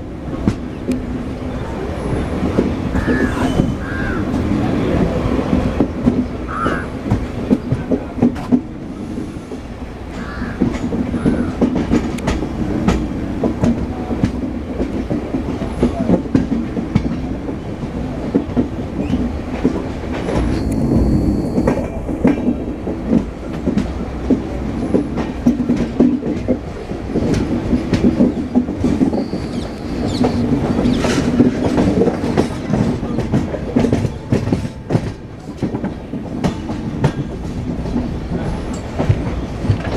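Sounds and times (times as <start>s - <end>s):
thin high whine: 20.5s - 21.9s.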